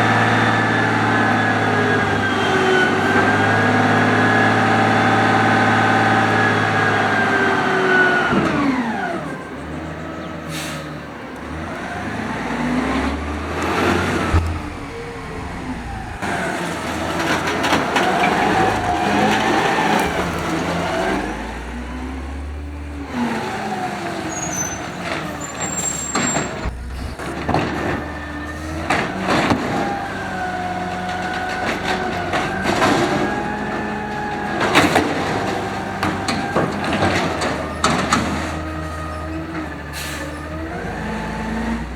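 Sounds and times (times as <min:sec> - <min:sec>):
garbage truck engine revving: 0:00.0 - 0:41.9
metallic bangs and clanks: 0:13.2 - 0:20.8, 0:24.8 - 0:30.2.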